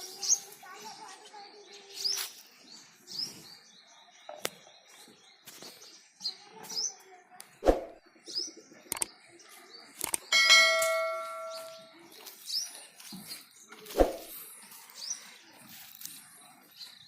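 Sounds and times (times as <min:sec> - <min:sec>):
small birds chirping: 0:00.0 - 0:17.0
loud ringing clang: 0:10.3 - 0:11.9.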